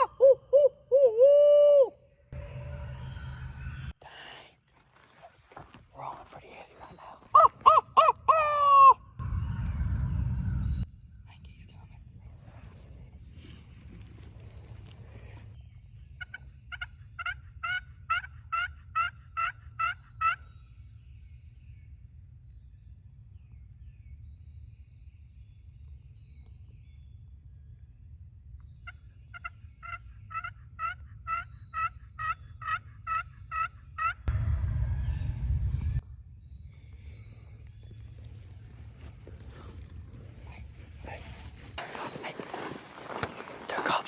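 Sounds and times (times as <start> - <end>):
turkey yelping: 7.3 - 9.0, 16.7 - 20.4, 29.4 - 34.2
loud rumbling noise: 9.2 - 10.8, 34.3 - 36.0.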